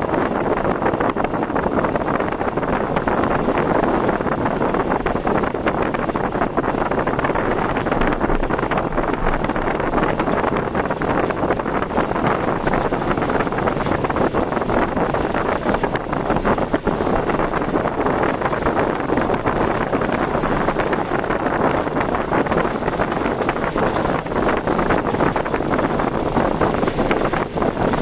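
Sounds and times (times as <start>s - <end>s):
road noise: 0.0s - 28.0s
wind rushing: 0.0s - 28.0s.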